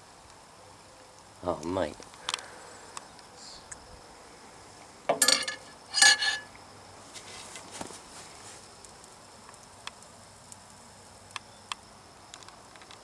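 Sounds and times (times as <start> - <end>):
hard objects clattering: 5.1 - 6.5.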